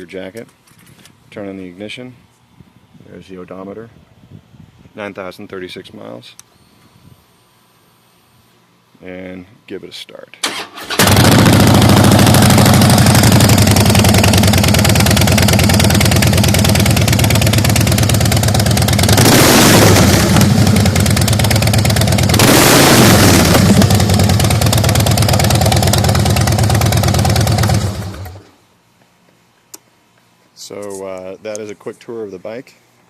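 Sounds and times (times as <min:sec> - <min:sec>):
motorcycle engine revving: 0:10.8 - 0:28.5
motorcycle engine idling: 0:11.0 - 0:28.4.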